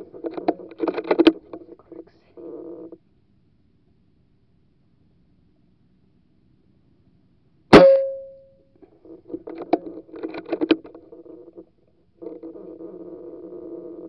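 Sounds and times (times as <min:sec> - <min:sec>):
rifle shot: 0:07.8 - 0:08.3.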